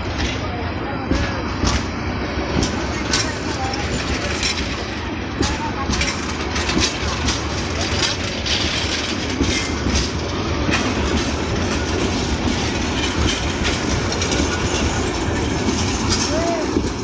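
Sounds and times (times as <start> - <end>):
train coaches rumbling: 0.0 - 17.0
wheels clacking over rail joints: 0.0 - 17.0.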